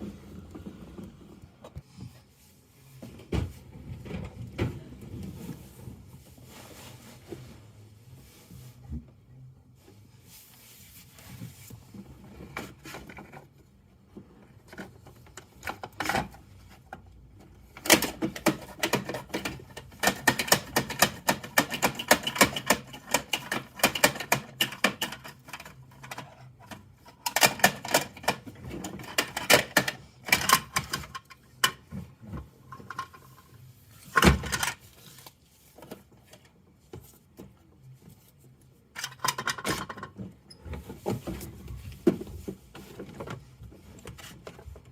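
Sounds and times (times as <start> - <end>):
plastic toy clicking and rattling: 17.8 - 31.8.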